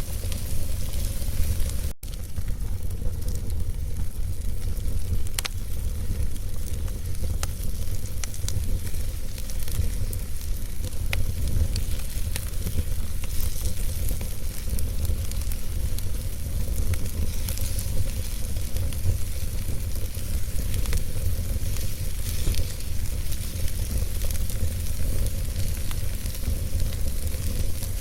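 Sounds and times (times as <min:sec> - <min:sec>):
logs popping and crackling: 0:00.0 - 0:28.0
wood fire rumbling: 0:00.0 - 0:28.0.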